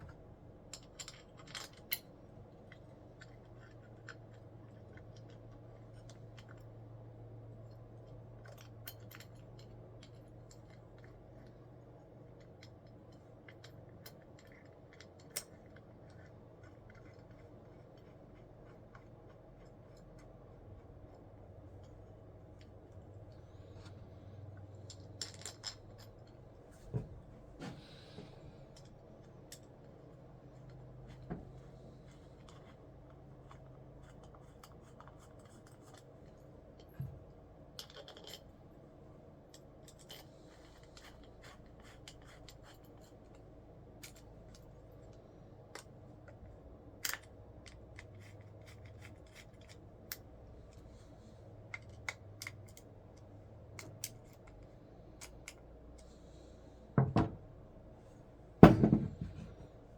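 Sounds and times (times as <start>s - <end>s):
loud knocks: 58.6s - 59.6s.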